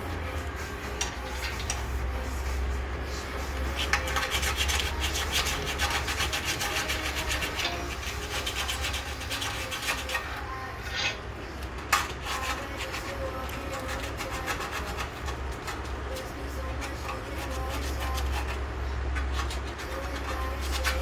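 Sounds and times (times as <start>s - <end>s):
steady low hum: 0.0s - 21.0s
hand tool scraping: 3.6s - 11.2s, 11.8s - 18.6s, 19.2s - 21.0s.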